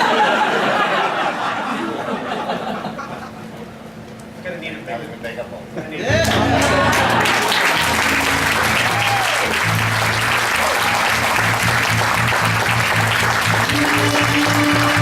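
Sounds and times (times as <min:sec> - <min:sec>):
audience applauding: 0:06.1 - 0:15.0
band music: 0:06.1 - 0:15.0
pulsing bass line: 0:06.1 - 0:15.0.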